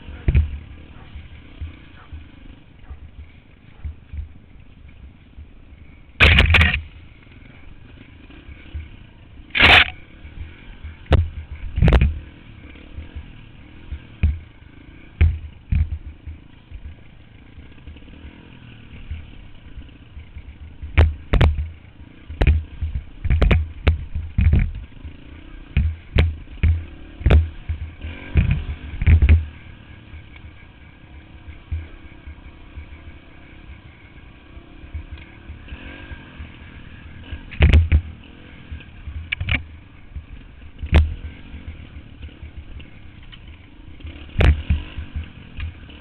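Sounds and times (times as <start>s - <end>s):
dirt bike engine running: 0.0s - 46.0s
sharp thumps and knocks: 0.2s - 2.2s, 6.2s - 6.9s, 9.5s - 10.0s, 11.0s - 12.2s, 14.1s - 14.4s, 15.1s - 16.9s, 20.8s - 24.9s, 25.7s - 29.5s, 37.5s - 41.9s, 44.3s - 45.8s.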